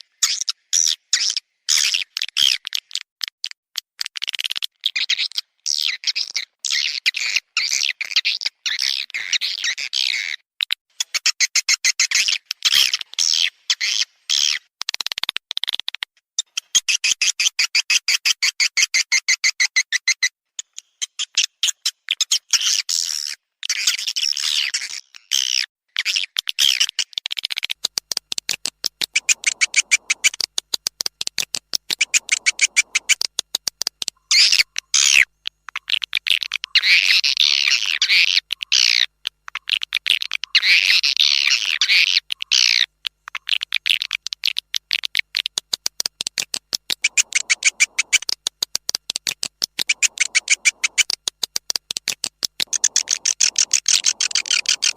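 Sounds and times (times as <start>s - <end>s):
swiftlets chirping twitters: 29.1s - 30.4s, 31.9s - 33.2s, 47.0s - 48.3s, 49.8s - 51.1s, 52.6s - 54.9s.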